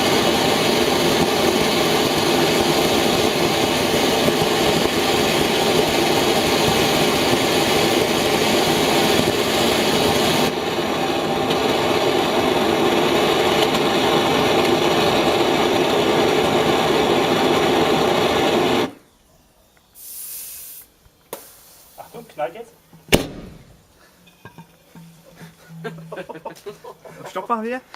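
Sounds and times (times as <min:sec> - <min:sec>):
rocket engine roaring: 0:00.0 - 0:19.0
high hiss: 0:18.1 - 0:27.9.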